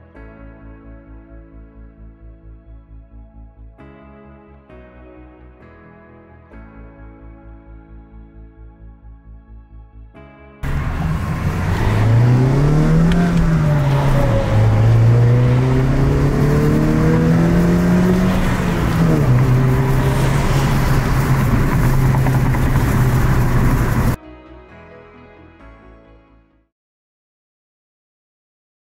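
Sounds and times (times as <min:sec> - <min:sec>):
car engine accelerating: 0:10.6 - 0:24.2.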